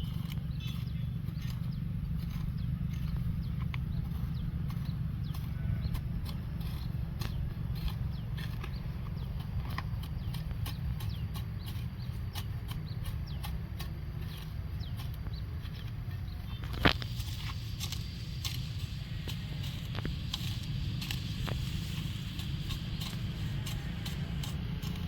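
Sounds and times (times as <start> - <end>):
low rumble: 15.2 - 25.0.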